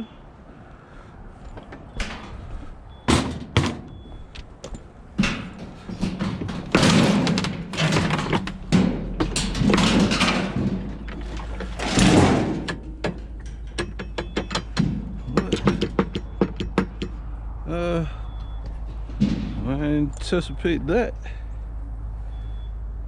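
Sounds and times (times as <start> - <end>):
sharp metallic clicks and taps: 12.7 - 17.3.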